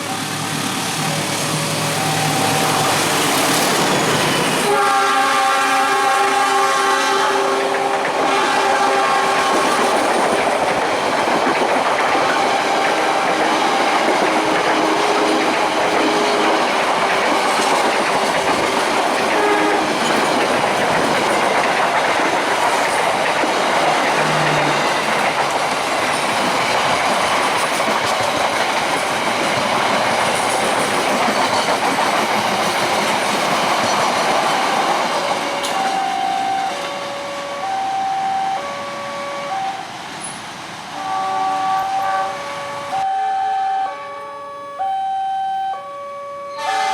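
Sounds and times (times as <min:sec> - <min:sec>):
level crossing warning tones: 0:01.0 - 0:05.5, 0:34.6 - 0:40.3, 0:41.0 - 0:46.9
train wheels clattering on rails: 0:07.4 - 0:37.2.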